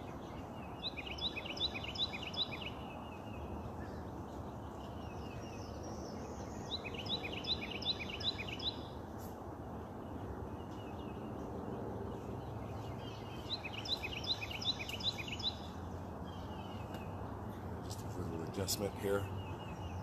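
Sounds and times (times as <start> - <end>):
outdoor background hiss: 0.0 - 20.0
songbird chirping: 0.0 - 20.0.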